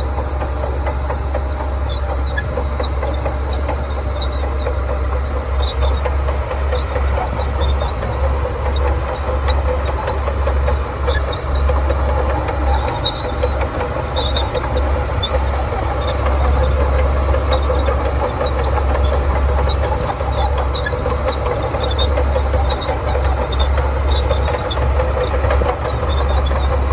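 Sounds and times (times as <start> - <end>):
bulldozer diesel engine rumbling: 0.0 - 26.9.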